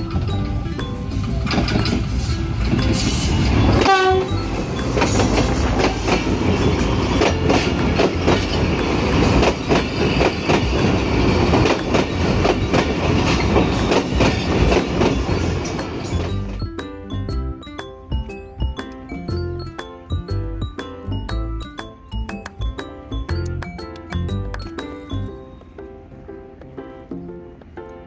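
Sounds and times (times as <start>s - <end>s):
train running past: 0.0s - 16.7s
wheels clattering over rail joints: 0.0s - 16.7s.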